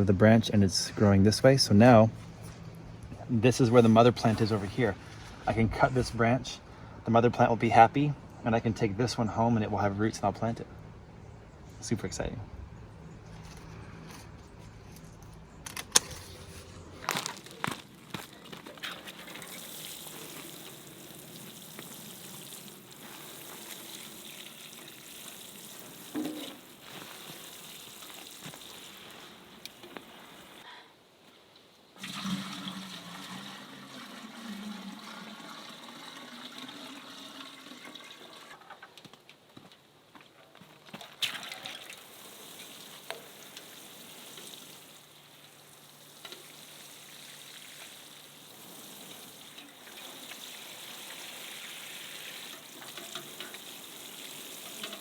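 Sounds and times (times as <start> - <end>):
running water rushing: 18.8 - 30.6, 41.2 - 55.0.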